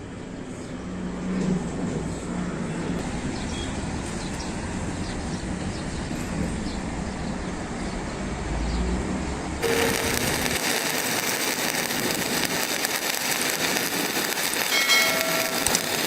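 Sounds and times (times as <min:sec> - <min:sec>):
welding arc crackling: 0:09.6 - 0:16.0.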